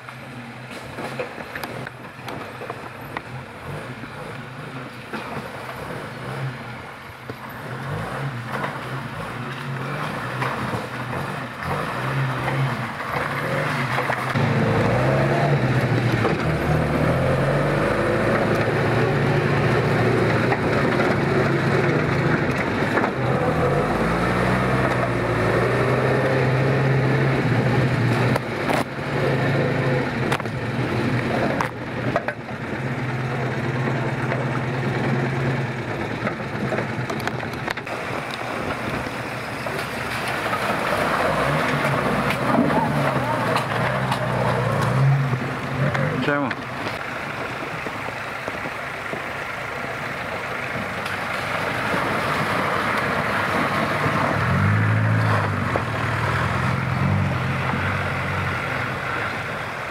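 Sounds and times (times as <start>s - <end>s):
off-road engine revving: 0.0s - 59.9s.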